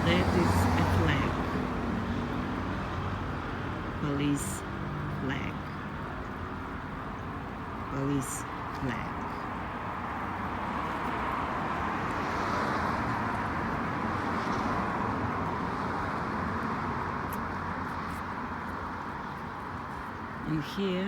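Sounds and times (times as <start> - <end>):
road traffic rushing: 0.0 - 21.0.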